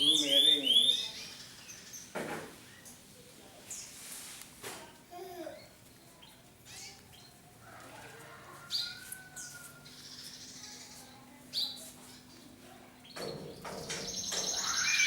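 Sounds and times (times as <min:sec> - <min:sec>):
canaries chirping: 0:00.0 - 0:02.1, 0:13.0 - 0:15.0.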